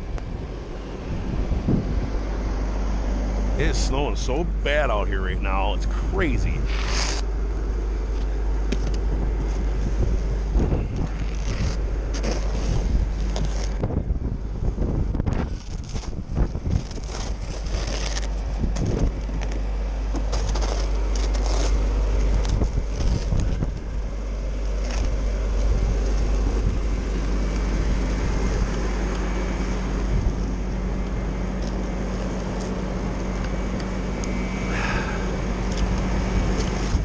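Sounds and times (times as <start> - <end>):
wind buffeting microphone: 0.0 - 4.9, 8.6 - 19.5, 34.7 - 37.0
steady low hum: 0.0 - 37.0.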